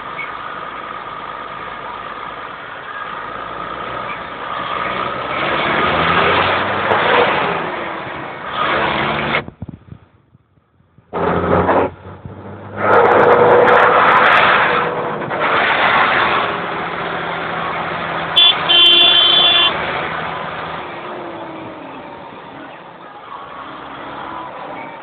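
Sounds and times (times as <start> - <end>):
tractor diesel engines: 0.0 - 25.0
vehicle horn honking: 18.4 - 19.8.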